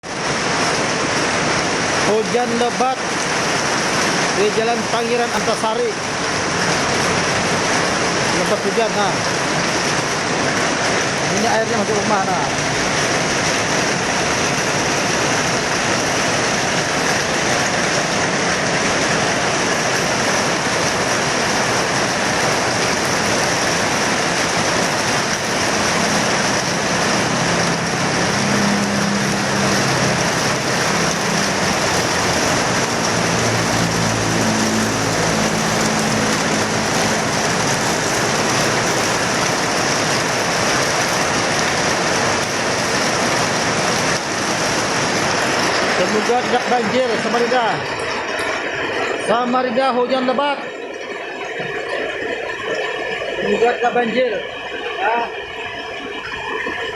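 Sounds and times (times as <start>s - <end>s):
heavy rain pouring: 0.0s - 56.9s
vehicle engine hum: 11.9s - 49.2s.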